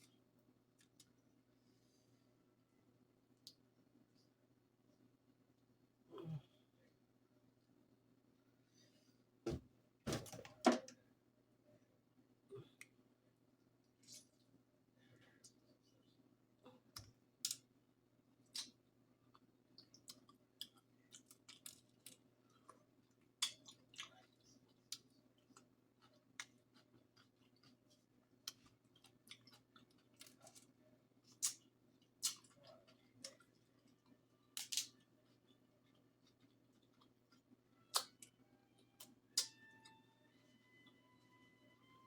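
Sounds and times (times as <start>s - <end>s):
quiet chewing: 0.0s - 1.8s, 18.4s - 39.9s
crab shells cracking: 34.6s - 35.0s.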